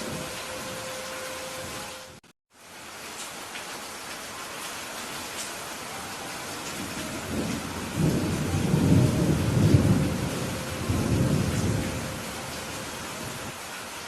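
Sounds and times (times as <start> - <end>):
steady rain: 0.0 - 14.0
low rumble of thunder: 6.7 - 13.6.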